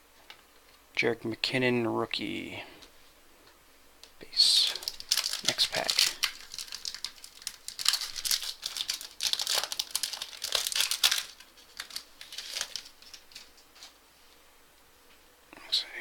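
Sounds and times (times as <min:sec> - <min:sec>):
wrapper crinkling and tearing: 0:04.4 - 0:14.0.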